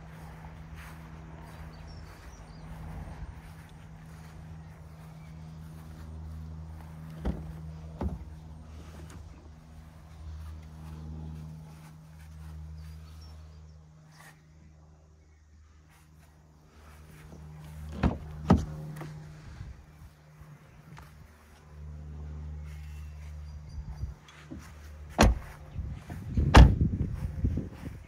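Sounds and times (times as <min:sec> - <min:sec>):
car engine idling: 0:00.0 - 0:13.7.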